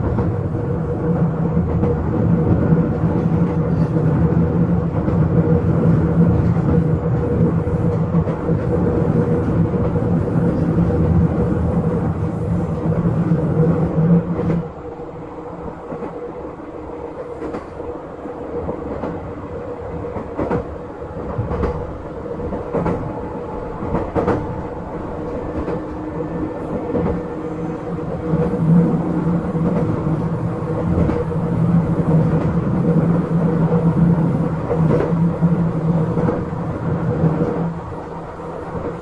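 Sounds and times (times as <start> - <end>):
electric train rumble and hum: 0.0 - 39.0
wheels clacking over rail joints: 20.2 - 27.3.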